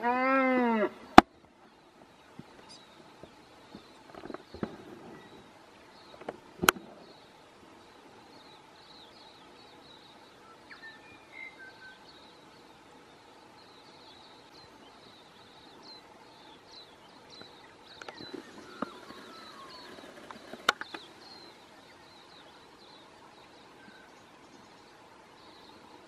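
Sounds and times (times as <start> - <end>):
small bird chirping: 13.6 - 26.0.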